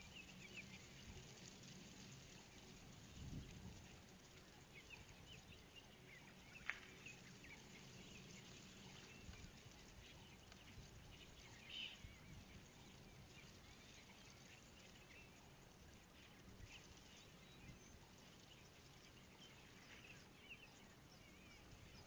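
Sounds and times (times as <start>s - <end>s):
faint high bird chirps: 4.6s - 22.0s.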